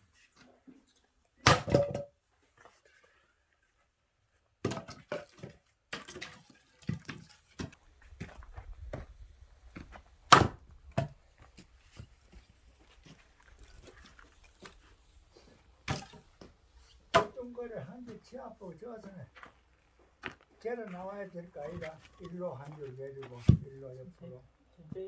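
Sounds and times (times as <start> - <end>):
axe striking wood: 1.4 - 2.1, 10.3 - 11.2, 15.9 - 16.2, 17.1 - 17.4.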